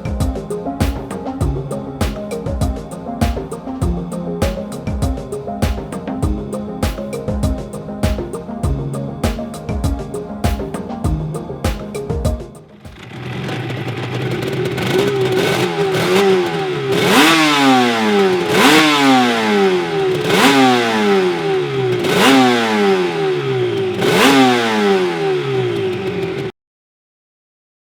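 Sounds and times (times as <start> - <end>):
motorcycle engine idling and revving: 12.7 - 26.6.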